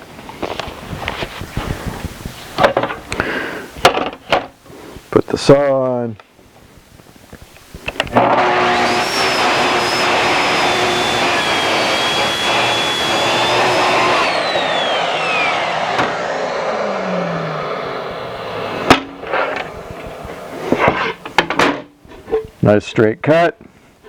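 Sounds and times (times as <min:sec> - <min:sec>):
track saw cutting plywood: 0:08.1 - 0:21.2
steady rushing noise: 0:14.8 - 0:21.5.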